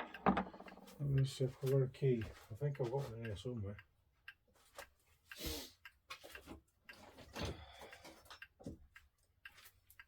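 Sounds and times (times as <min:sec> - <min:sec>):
mechanical clock ticking: 0:00.0 - 0:07.0.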